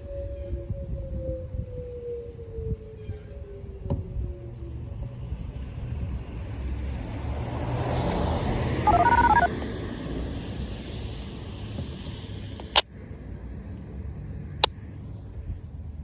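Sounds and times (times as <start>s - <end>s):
passing road vehicle rumble: 5.8s - 12.6s
electronic beeping tones: 8.9s - 9.6s, 10.2s - 12.8s.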